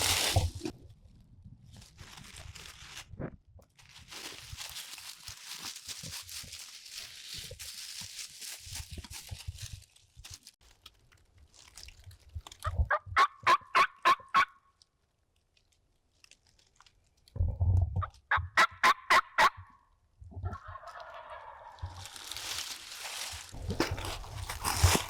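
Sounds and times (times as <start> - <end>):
turkey yelps: 12.6 - 14.6, 18.0 - 19.7, 20.5 - 22.0.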